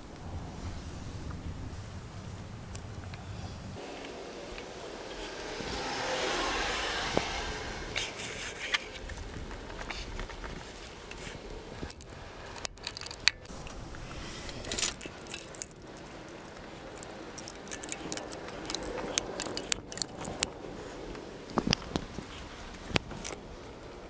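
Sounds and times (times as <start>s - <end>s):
small metal tools clicking and scraping: 7.1s - 20.6s.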